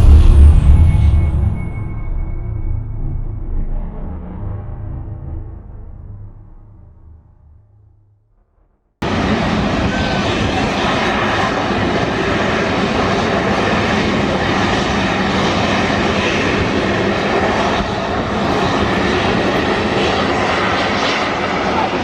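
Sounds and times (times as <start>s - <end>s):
jet engines running: 9.0s - 22.0s.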